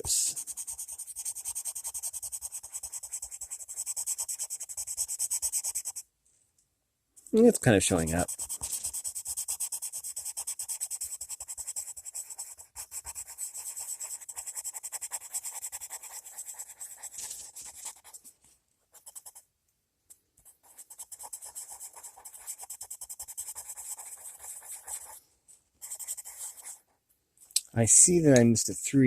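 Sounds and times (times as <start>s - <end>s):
pencil scribbling on paper: 0.0s - 6.0s, 7.6s - 18.2s, 18.9s - 19.4s, 20.4s - 25.2s, 25.8s - 27.0s.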